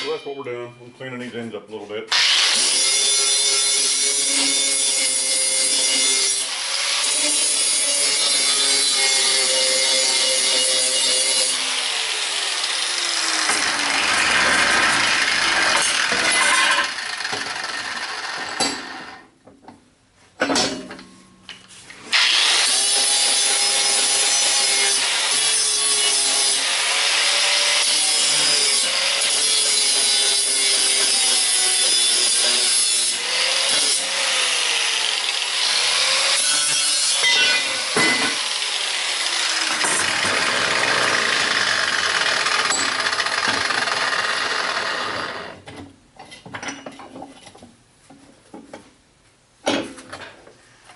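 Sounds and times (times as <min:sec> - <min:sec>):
power grinder grinding metal: 0:02.1 - 0:19.2, 0:22.1 - 0:45.6.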